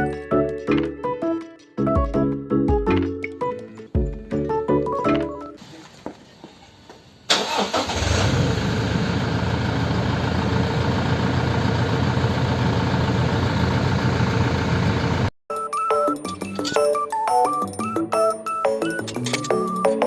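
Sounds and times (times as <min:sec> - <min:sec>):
engine starting and idling: 0:05.6 - 0:15.3.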